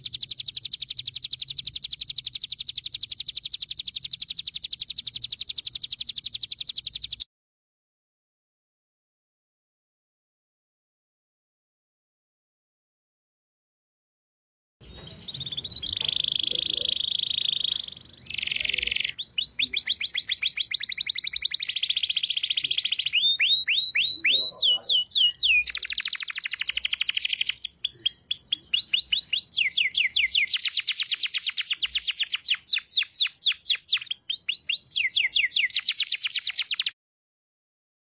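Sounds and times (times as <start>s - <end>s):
songbird singing rapid trills: 0.0s - 7.3s, 14.8s - 37.0s.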